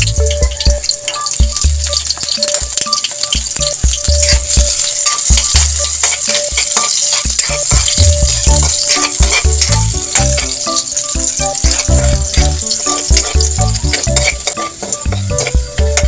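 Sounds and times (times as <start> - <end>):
food sizzling in oil: 0.0 - 16.0
music with bass line: 0.0 - 16.0
spatula scraping a wok: 3.6 - 16.0.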